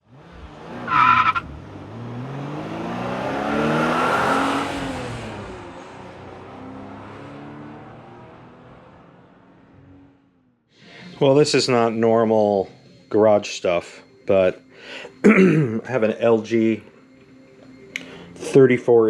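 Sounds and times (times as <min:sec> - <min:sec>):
vehicle engine revving: 0:00.0 - 0:10.4.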